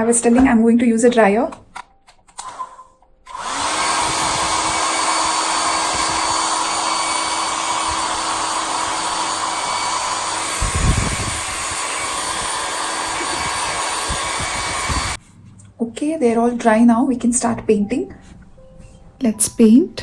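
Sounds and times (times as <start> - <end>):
hair dryer blowing: 3.3 - 15.2.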